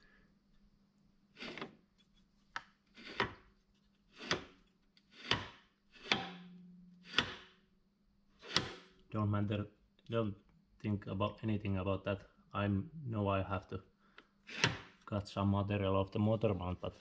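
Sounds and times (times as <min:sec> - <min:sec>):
sharp metal knock: 0:06.1 - 0:07.5.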